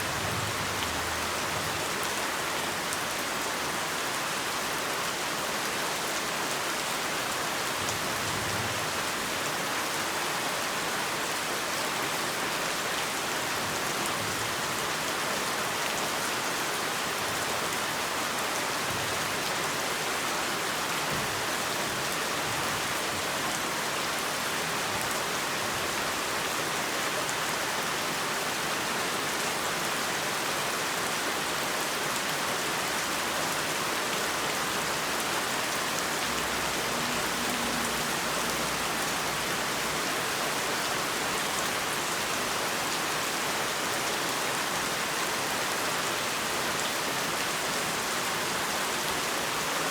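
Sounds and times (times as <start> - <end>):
heavy rain: 0.0 - 49.9.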